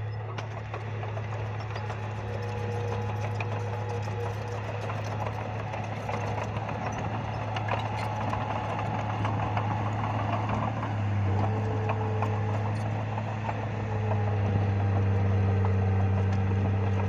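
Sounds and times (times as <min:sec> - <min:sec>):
bulldozer diesel engine: 0:00.0 - 0:17.0.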